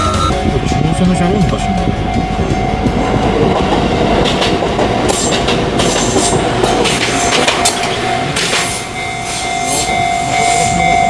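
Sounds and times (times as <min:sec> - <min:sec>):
steady pitched tone: 0:00.0 - 0:03.3
train wheels clattering: 0:01.4 - 0:11.0.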